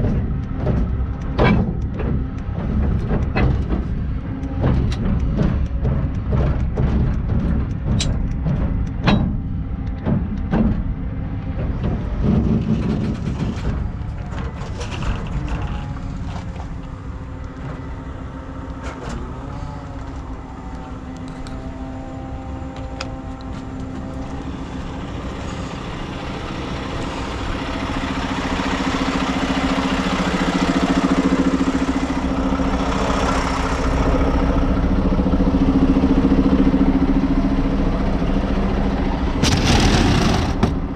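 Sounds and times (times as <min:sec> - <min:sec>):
knocks and clanks: 0:00.0 - 0:21.5, 0:39.4 - 0:40.9
truck diesel engine running: 0:00.0 - 0:40.9.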